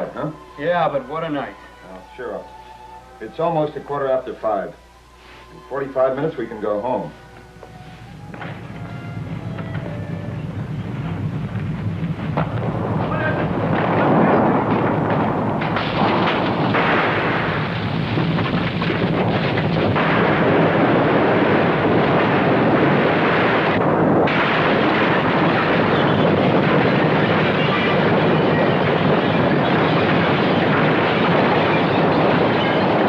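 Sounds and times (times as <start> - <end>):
earthquake rumble: 8.2 - 33.0
shaking and crashing: 8.4 - 33.0.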